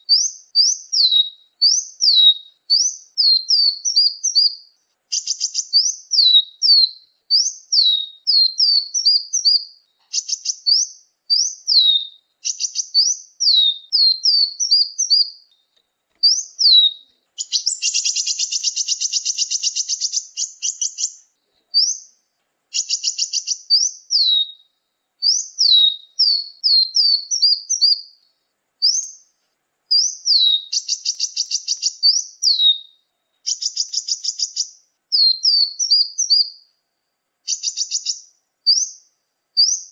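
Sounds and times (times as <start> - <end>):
bird buzzing trills: 0.0 - 15.6, 16.2 - 24.6, 29.9 - 32.8, 33.4 - 36.6
songbird whistled notes: 0.0 - 29.3, 29.9 - 36.7, 37.5 - 39.9.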